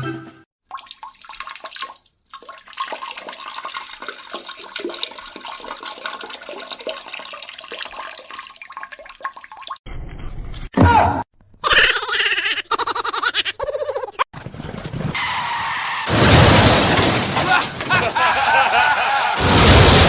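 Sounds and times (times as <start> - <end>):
running water splashing: 0.6 - 9.8.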